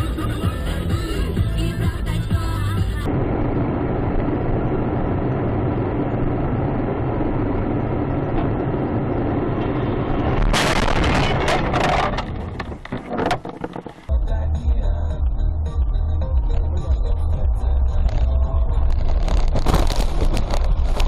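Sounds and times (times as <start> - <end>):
car engine and road noise: 0.0 - 21.0
car collision crash: 10.4 - 14.1.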